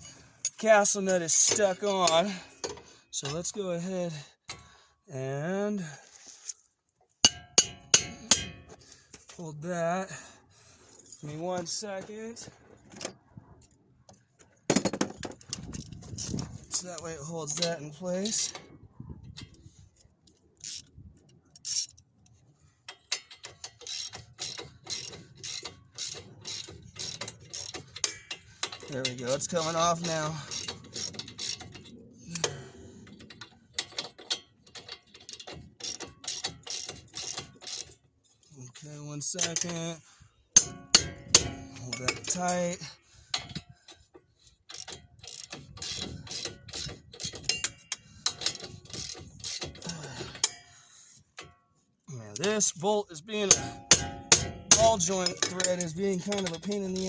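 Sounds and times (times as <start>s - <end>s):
ratchet wrench clicking: 20.6s - 21.0s, 21.6s - 22.0s, 22.9s - 38.0s, 43.3s - 50.7s, 53.5s - 57.0s.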